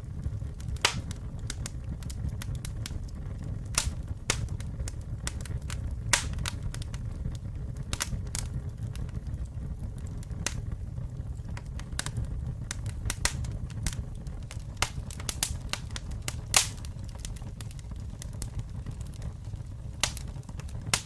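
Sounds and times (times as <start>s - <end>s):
burning wood crackling and popping: 0.0s - 21.0s
low rumble of flames: 0.0s - 21.0s.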